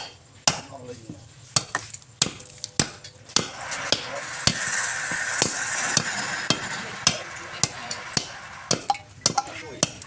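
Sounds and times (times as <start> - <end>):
hissing wood cut: 3.3 - 10.0.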